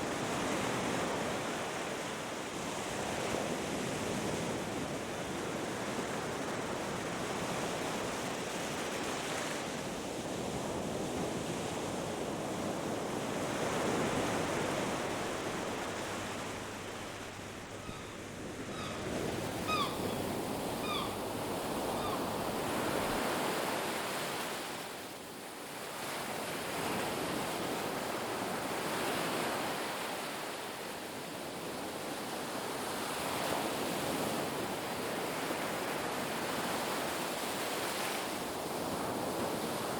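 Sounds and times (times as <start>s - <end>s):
bird chirps: 17.8s - 21.2s.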